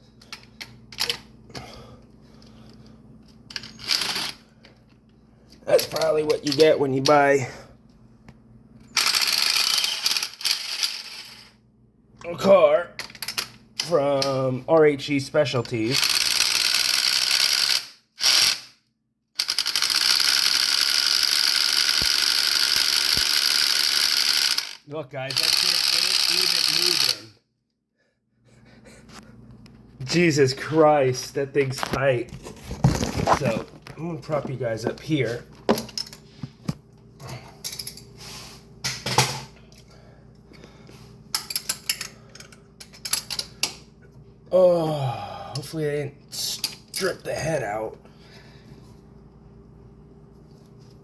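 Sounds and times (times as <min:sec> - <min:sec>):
ratchet wrench clicking: 0:09.0 - 0:11.1, 0:15.9 - 0:18.7, 0:19.4 - 0:27.3.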